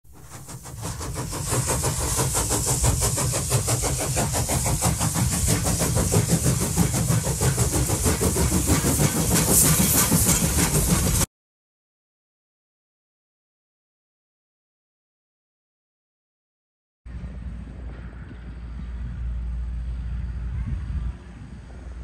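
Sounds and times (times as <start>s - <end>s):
diesel locomotive engine pulsing: 0.0s - 11.3s, 17.1s - 22.0s
train rail noise: 0.0s - 11.3s, 17.1s - 22.0s
hiss: 0.1s - 11.3s.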